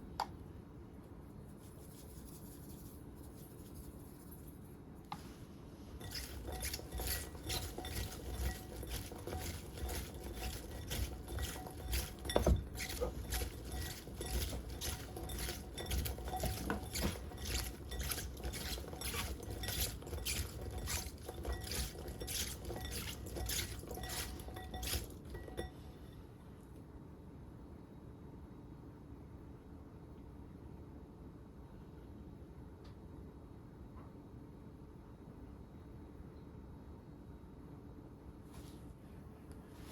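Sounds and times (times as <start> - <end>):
knife cutting on cutting board: 6.0 - 25.1.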